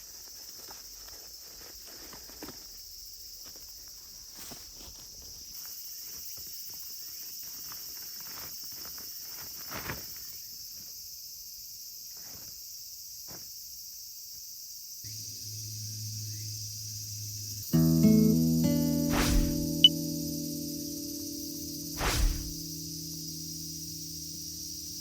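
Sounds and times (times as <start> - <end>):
insects chirping: 0.0 - 25.0
low hum: 15.1 - 25.0.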